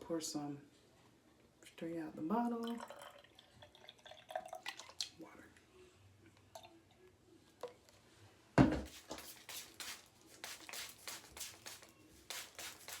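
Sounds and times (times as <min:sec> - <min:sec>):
knock: 0:08.6 - 0:08.9
spray bottle hissing sprays: 0:08.8 - 0:13.0.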